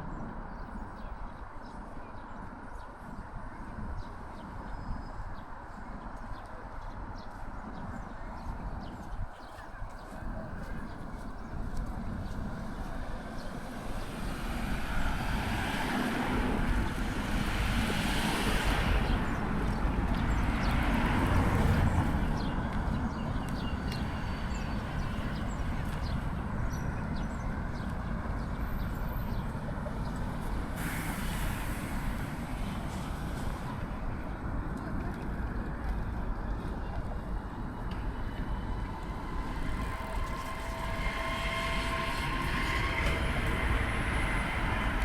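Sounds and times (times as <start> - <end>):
road traffic noise: 9.8 - 45.0
hiss: 30.8 - 33.8.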